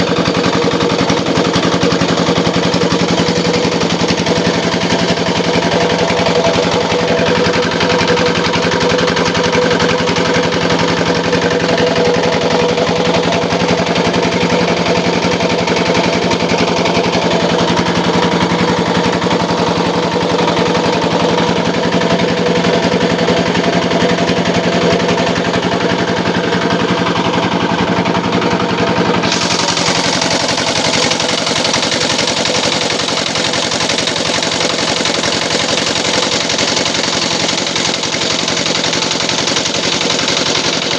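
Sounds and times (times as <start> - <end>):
grinding machine rattling: 0.0 - 40.9.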